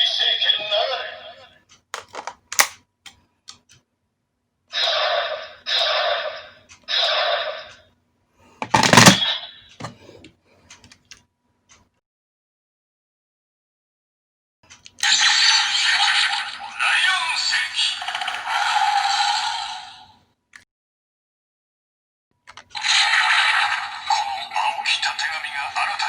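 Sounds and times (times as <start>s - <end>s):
plastic toy mechanism clicks: 2.0s - 2.8s
toy electronic sound effects: 4.7s - 7.8s, 15.0s - 20.1s.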